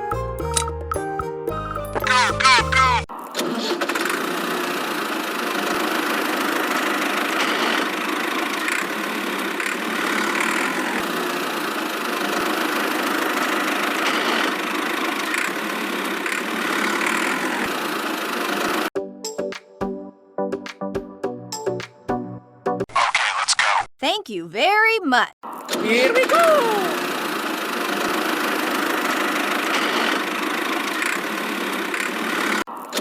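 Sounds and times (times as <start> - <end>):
small motor whirring: 26.4 - 32.7.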